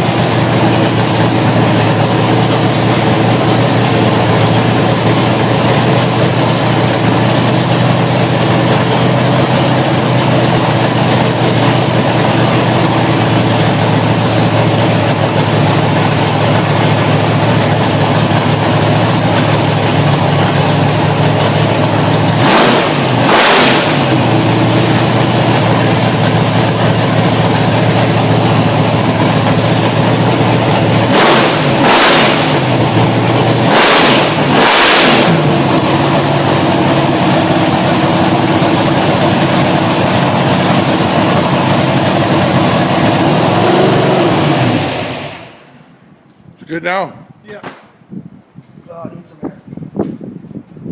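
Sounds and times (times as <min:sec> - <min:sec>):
race engine idling loudly: 0:00.0 - 0:45.7
sharp throttle blips: 0:22.3 - 0:26.8, 0:30.9 - 0:35.8.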